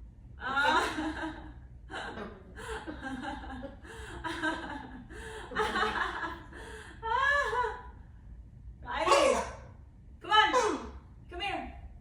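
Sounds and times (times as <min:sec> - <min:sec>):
parrot vocalizing: 0:09.0 - 0:09.7, 0:10.5 - 0:11.0.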